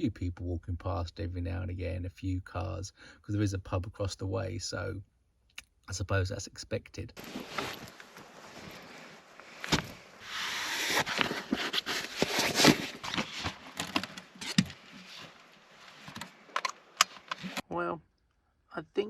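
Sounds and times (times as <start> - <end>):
bedding and fabric rustling: 7.2 - 17.6.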